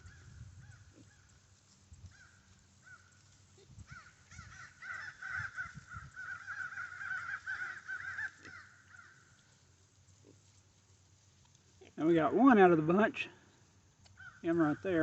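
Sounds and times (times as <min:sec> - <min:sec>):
flock of birds calling: 0:02.1 - 0:09.3, 0:14.1 - 0:15.0.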